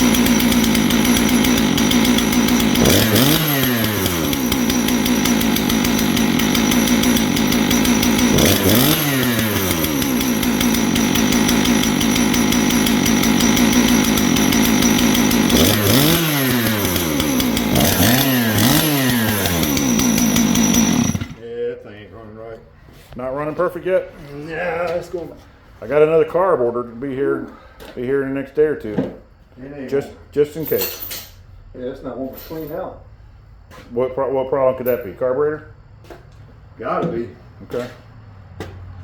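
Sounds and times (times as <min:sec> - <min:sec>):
chainsaw running at high revs: 0:00.0 - 0:21.4.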